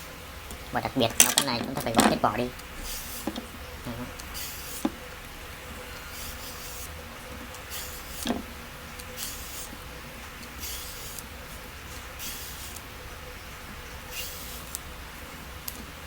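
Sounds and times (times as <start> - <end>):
peeler scraping cucumber: 2.4 - 5.1, 5.9 - 11.3, 11.9 - 12.9, 14.0 - 14.8.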